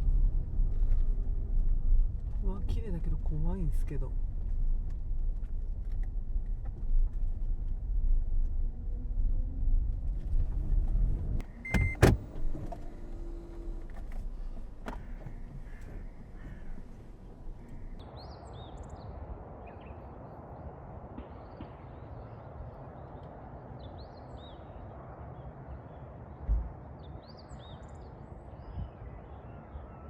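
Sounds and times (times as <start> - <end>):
car rumbling on the move: 4.1 - 18.0.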